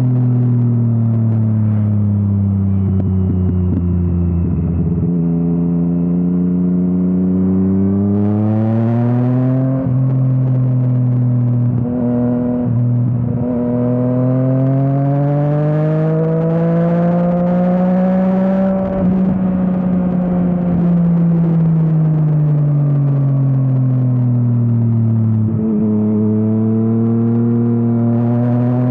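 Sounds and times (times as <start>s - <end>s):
motorcycle engine revving: 0.0s - 28.9s
rush of wind noise: 16.0s - 28.9s.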